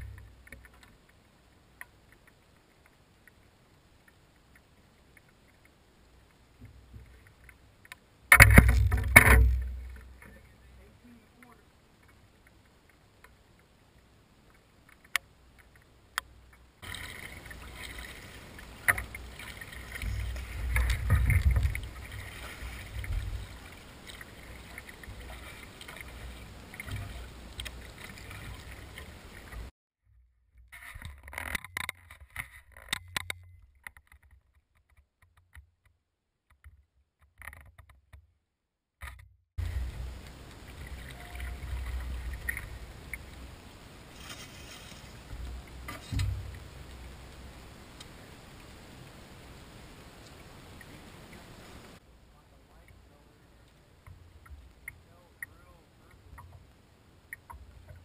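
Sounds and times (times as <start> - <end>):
paddle strokes: 0.0 - 29.7, 39.6 - 58.0
water against kayak hull: 0.0 - 29.7, 30.6 - 38.3, 39.0 - 58.0
low rumble: 16.4 - 29.7, 39.6 - 44.1.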